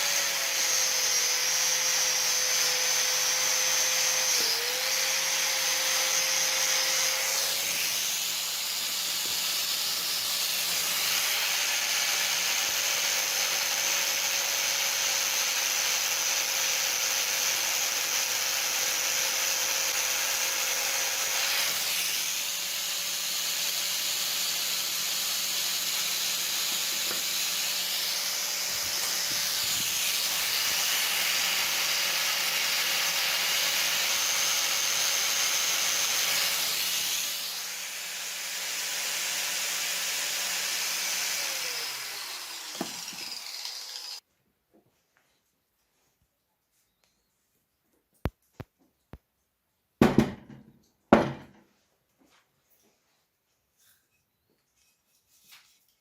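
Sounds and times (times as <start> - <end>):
power tool running with hiss: 0.0 - 44.2.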